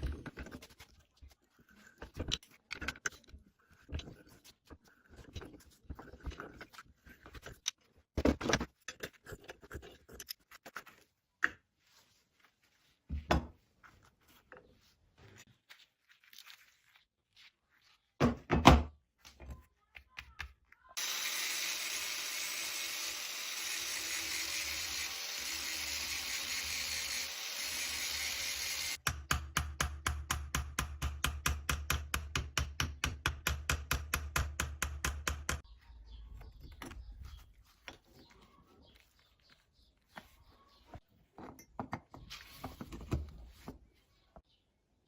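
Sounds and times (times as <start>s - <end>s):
steady machine noise: 21.0s - 29.0s.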